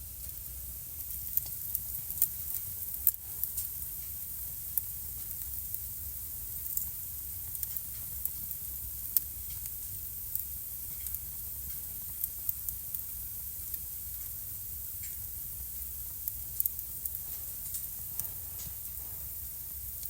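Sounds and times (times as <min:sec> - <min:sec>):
fire crackles and pops: 0:00.0 - 0:20.0
wood fire hissing and rumbling: 0:00.0 - 0:20.0.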